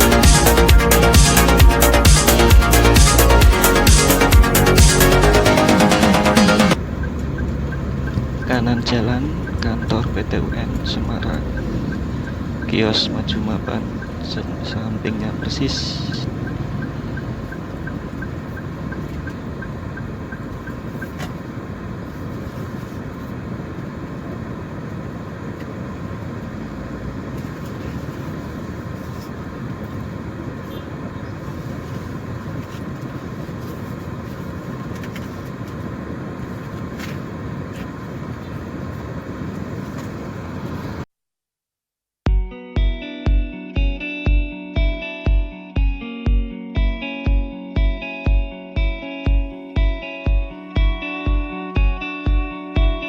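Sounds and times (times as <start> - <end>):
road traffic: 0.0 - 41.1
faint regular ticking: 6.8 - 21.2.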